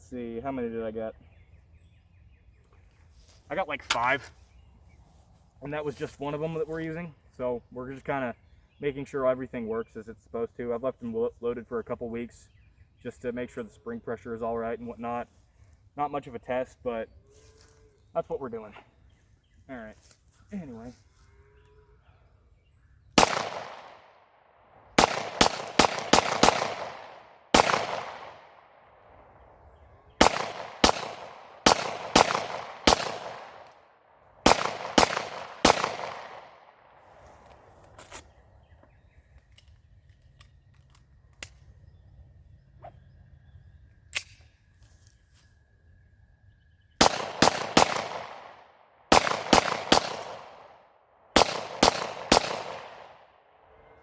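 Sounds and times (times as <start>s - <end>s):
pistol shots echoing: 23.2s - 24.2s, 24.9s - 29.2s, 30.2s - 33.8s, 34.4s - 37.0s, 47.0s - 53.3s.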